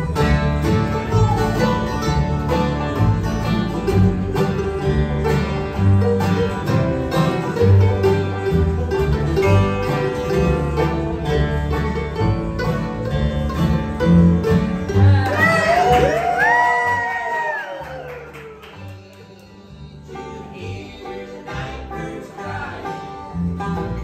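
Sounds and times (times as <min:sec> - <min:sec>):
guitar picking: 0:00.0 - 0:16.3
banjo picking: 0:00.0 - 0:17.3, 0:17.9 - 0:24.0
bass line: 0:00.0 - 0:24.0.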